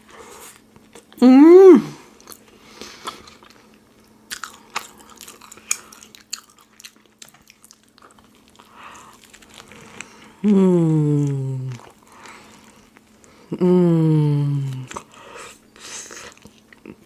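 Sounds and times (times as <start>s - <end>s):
person humming mmm: 1.2s - 2.1s, 10.4s - 11.9s, 13.5s - 15.0s
crunchy chewing of food: 2.1s - 10.4s, 11.2s - 13.5s, 14.6s - 17.0s.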